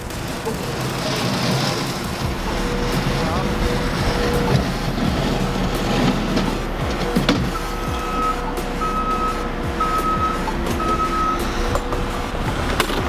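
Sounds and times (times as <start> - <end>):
engine running: 0.0 - 13.0
reverse alarm beeping: 7.4 - 12.4.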